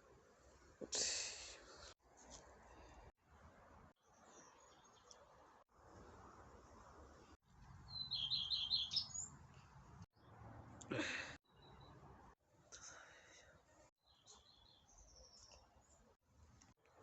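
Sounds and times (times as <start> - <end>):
bird singing high notes: 7.9 - 9.3.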